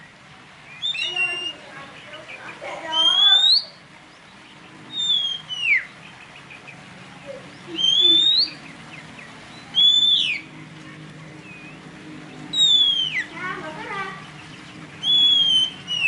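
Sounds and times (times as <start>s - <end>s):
songbird whistling: 0.0s - 3.9s, 4.6s - 10.5s, 12.4s - 13.4s, 14.2s - 16.0s.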